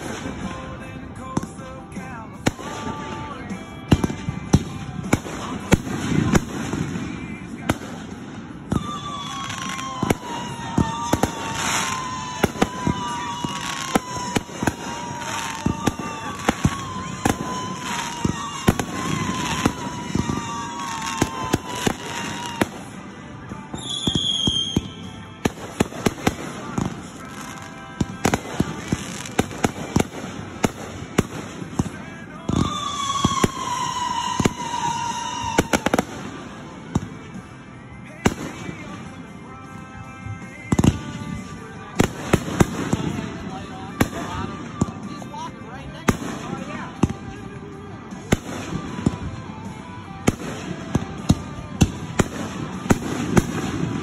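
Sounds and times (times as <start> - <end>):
fireworks bangs and pops: 0.0 - 54.0
whistling firework: 2.5 - 39.0, 48.1 - 54.0.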